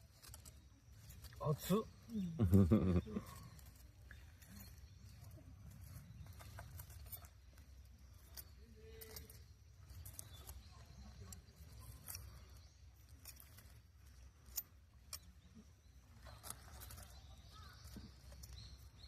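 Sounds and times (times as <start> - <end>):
campfire crackling: 0.0 - 4.6.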